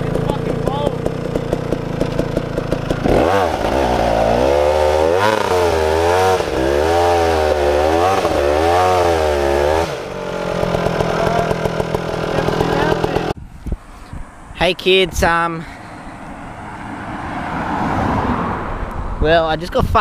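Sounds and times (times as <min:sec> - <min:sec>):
dirt bike engine revving: 0:00.0 - 0:13.4.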